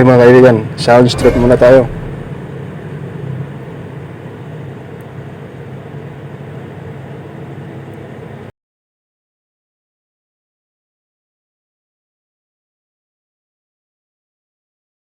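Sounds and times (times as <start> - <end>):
road noise: 0.7 - 6.4
car engine droning: 0.7 - 7.2.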